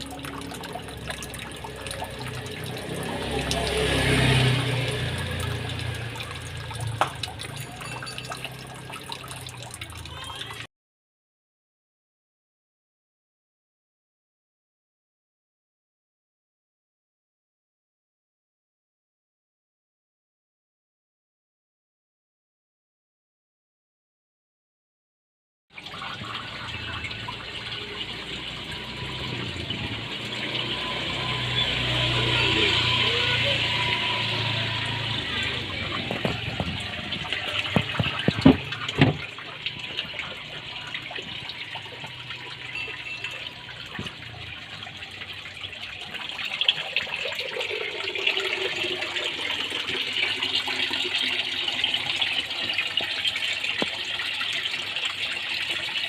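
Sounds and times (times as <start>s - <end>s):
pond pump motor hum: 0.0s - 10.6s, 25.8s - 56.0s
water gushing and splashing: 0.0s - 10.7s, 25.7s - 56.0s.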